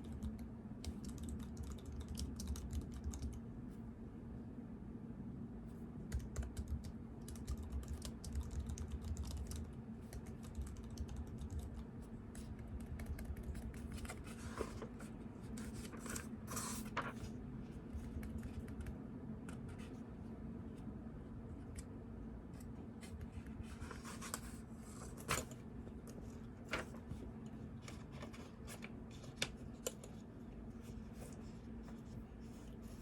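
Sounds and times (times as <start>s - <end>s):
typing on computer keyboard: 0.0s - 3.4s, 6.1s - 11.9s, 12.6s - 14.1s
steady low hum: 0.0s - 33.0s.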